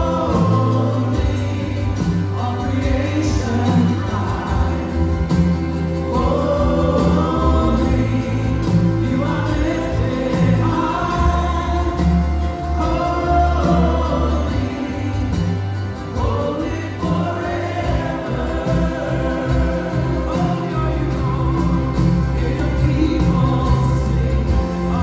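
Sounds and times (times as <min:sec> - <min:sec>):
gospel choir singing: 0:00.0 - 0:25.0
live band with bass line: 0:00.0 - 0:25.0.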